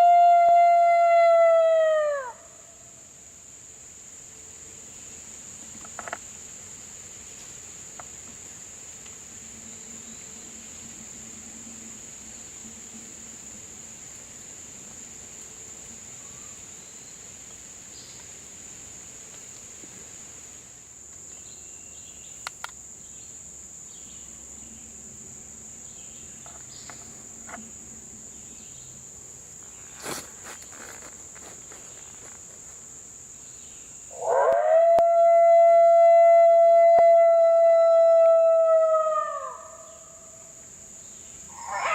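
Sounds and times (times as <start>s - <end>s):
crickets trilling: 0.0s - 41.9s.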